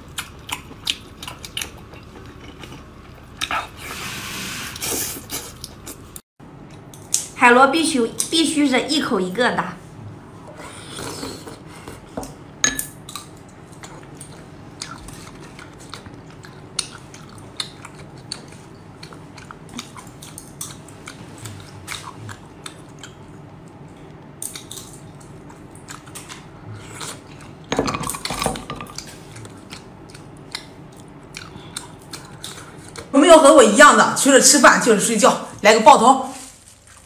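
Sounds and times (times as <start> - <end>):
chewing and wet mouth noises: 0.0 - 7.3, 13.0 - 33.1.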